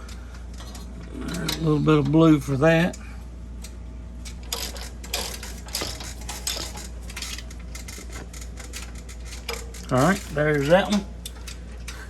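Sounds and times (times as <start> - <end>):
metal tools clicking and clinking: 4.2 - 12.0.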